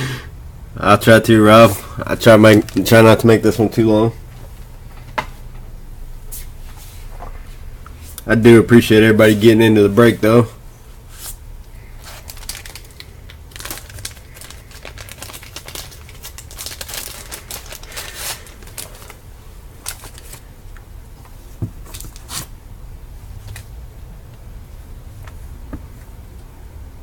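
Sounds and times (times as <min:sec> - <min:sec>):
plastic wrapping crinkling: 0:02.2 - 0:03.3, 0:11.8 - 0:20.5.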